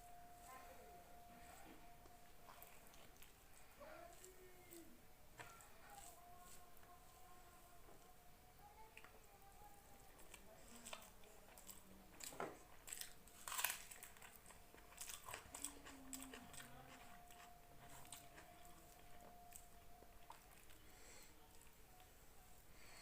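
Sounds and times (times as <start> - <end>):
chewing and biting: 10.2 - 20.8.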